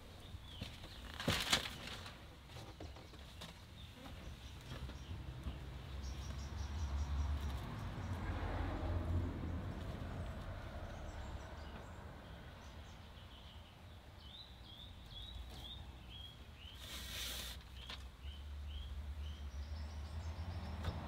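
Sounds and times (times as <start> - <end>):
small bird chirping: 10.9 - 20.6
brief rustling hiss: 16.8 - 17.8.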